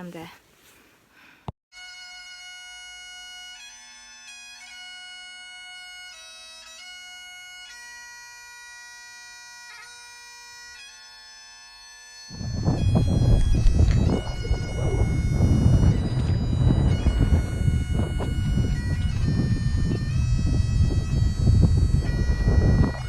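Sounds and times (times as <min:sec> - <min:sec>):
bagpipe chanter melody: 0:01.8 - 0:23.0
bagpipe drone: 0:01.8 - 0:23.0.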